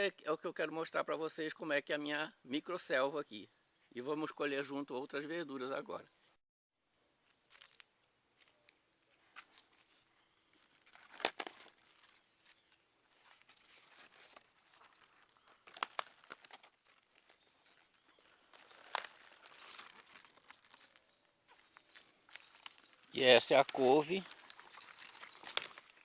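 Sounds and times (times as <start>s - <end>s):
foliage rustling: 7.3s - 26.0s
stems snapping: 10.6s - 12.1s, 14.3s - 26.0s.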